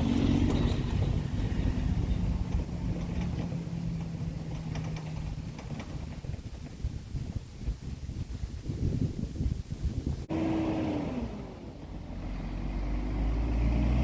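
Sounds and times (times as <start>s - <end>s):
truck diesel engine humming: 0.0s - 8.3s, 9.8s - 14.0s
wind buffeting microphone: 0.0s - 14.0s.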